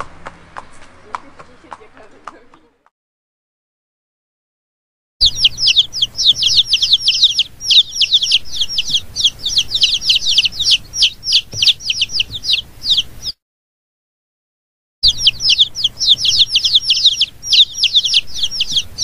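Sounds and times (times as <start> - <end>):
chicks peeping: 0.0 - 2.7, 5.2 - 13.4, 15.0 - 19.0.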